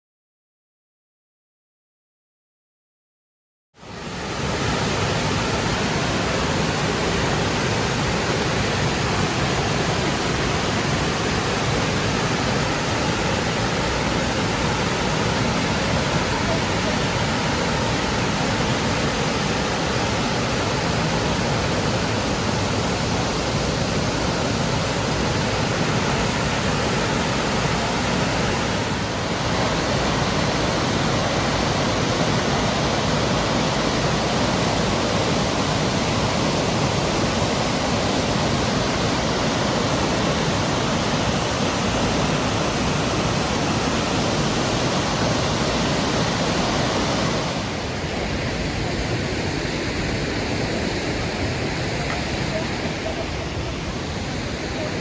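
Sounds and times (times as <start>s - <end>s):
waterfall rushing: 3.8s - 55.0s.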